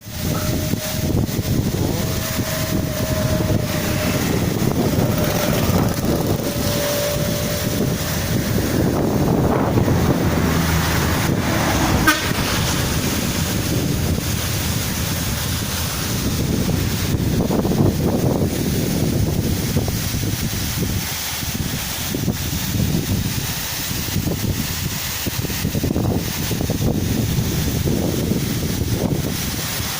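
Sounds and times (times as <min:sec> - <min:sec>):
road traffic passing: 0:00.0 - 0:29.9
waterfall rushing: 0:00.0 - 0:29.9
faint horn-like tone: 0:01.8 - 0:08.0, 0:11.6 - 0:12.6.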